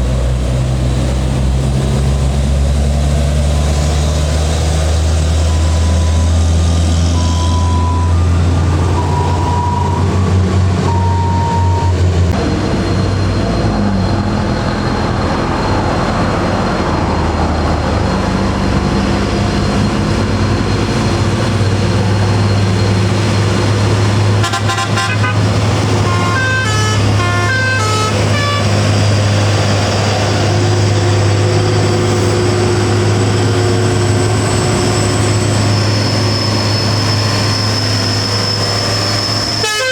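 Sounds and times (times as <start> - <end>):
truck engine running: 0.0 - 39.9
truck horn tones: 10.8 - 12.1, 24.3 - 29.0, 38.8 - 39.9.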